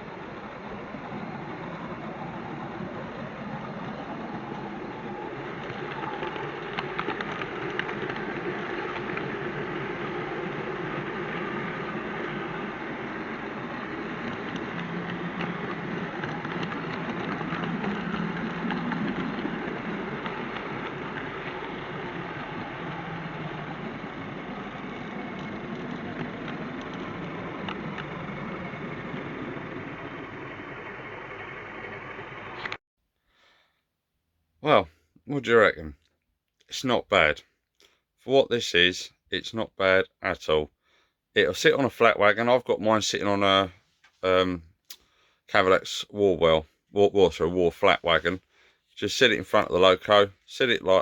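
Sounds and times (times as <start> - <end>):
model train running on track: 0.0 - 32.8, 38.3 - 51.0
wheel clicks over rail joints: 2.1 - 29.3.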